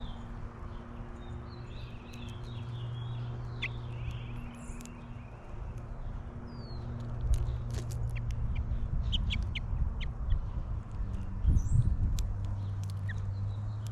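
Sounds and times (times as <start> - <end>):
finches chirping: 0.0 - 13.9
sharp clicks: 3.4 - 5.0, 12.0 - 13.9.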